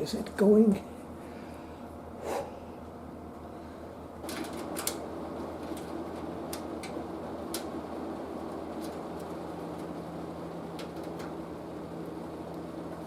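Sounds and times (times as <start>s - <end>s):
steady low hum: 0.0s - 13.0s
sharp crackling clicks: 4.2s - 5.0s, 5.6s - 7.8s
rushing static noise: 4.2s - 13.0s.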